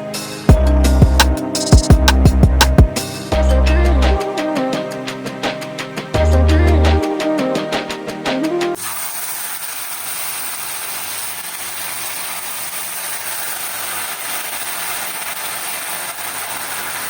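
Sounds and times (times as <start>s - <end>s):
food sizzling in hot oil: 8.8s - 17.0s.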